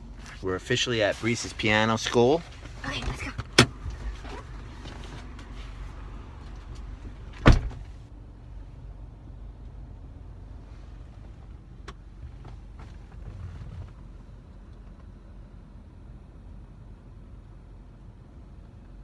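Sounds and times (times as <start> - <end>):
low steady cabin rumble: 0.0 - 19.0
car door slamming: 7.4 - 8.0.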